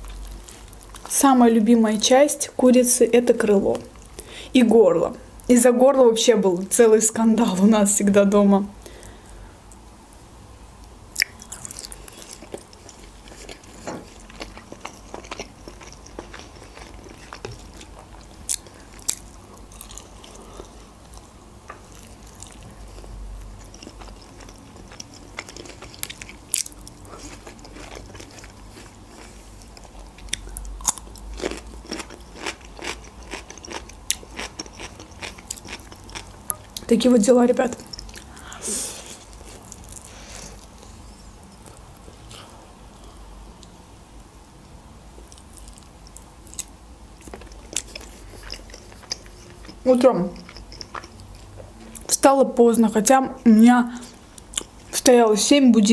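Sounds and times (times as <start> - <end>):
person chewing grilled chicken: 11.2 - 36.9, 37.8 - 43.2, 45.2 - 52.1, 54.1 - 54.9.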